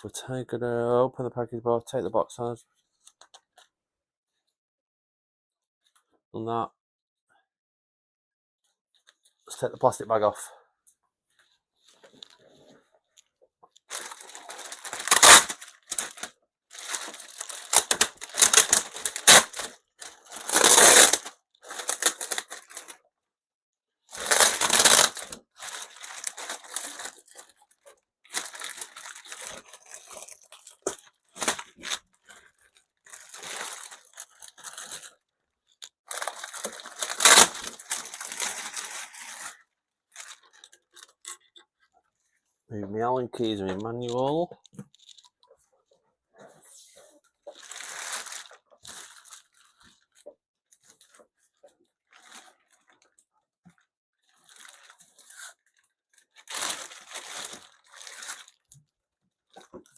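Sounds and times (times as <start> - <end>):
plastic bag rustling and crinkling: 13.9 - 23.0, 24.1 - 35.2, 36.1 - 41.9, 46.5 - 58.8.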